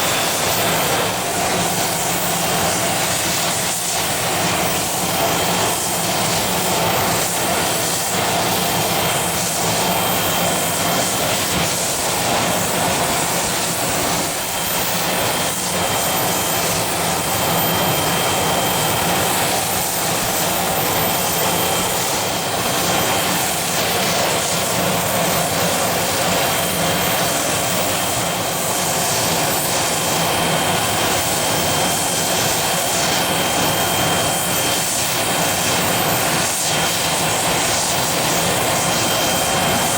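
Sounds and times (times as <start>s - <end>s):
jet turbine engines running: 0.0s - 39.9s.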